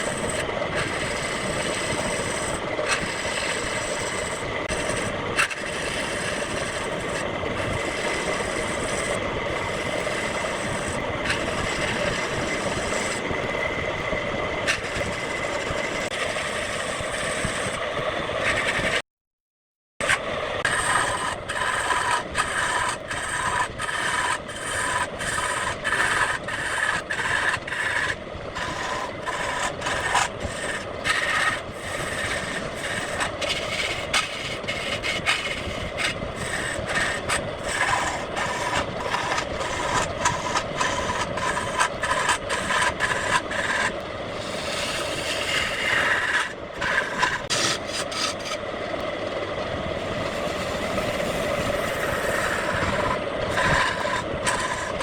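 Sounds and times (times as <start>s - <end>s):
wood lathe tool cutting wood: 0.0s - 13.6s, 20.7s - 48.6s, 50.0s - 55.0s.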